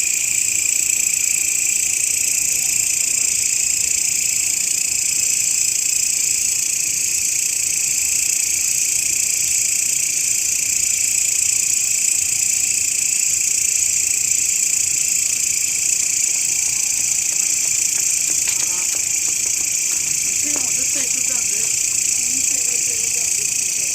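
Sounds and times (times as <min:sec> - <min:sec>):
grasshopper stridulating: 0:13.2 - 0:23.9.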